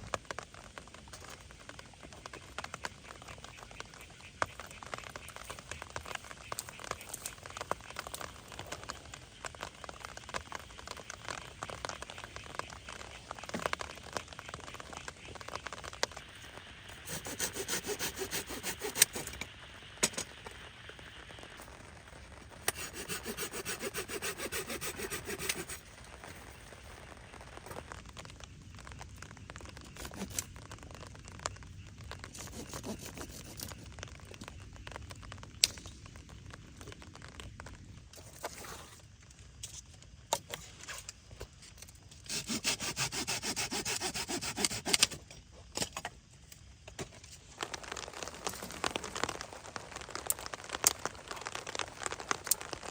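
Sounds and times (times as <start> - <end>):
small clicks and ticks: 0.0 - 42.5, 44.6 - 52.9
hand saw cutting firewood: 17.0 - 19.4, 22.6 - 25.8, 32.4 - 33.7, 42.3 - 45.2.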